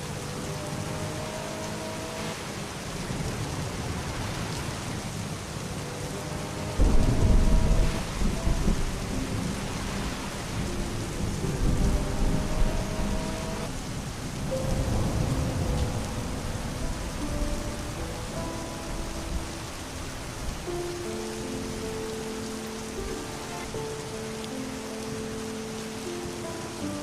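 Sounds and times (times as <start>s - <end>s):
heavy rain: 0.0s - 27.0s
rolling thunder: 2.6s - 21.9s.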